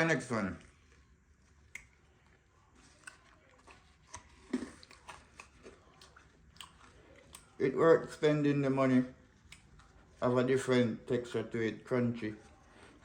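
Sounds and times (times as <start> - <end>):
candy crunching when chewed: 0.6 - 7.8.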